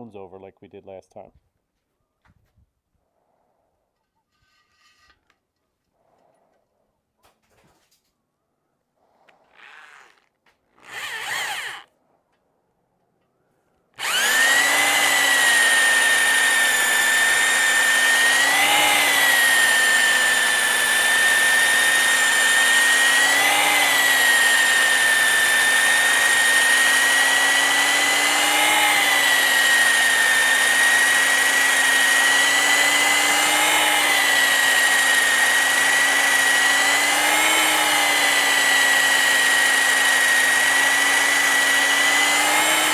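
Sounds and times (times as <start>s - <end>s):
electric drill whining: 10.8s - 11.9s, 14.0s - 42.9s.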